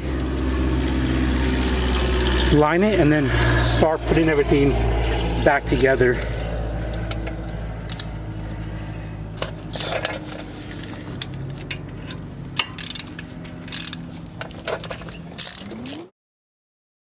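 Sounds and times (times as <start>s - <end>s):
low hum: 0.0s - 15.5s
metal tools clicking and clinking: 4.5s - 8.5s, 9.4s - 16.0s.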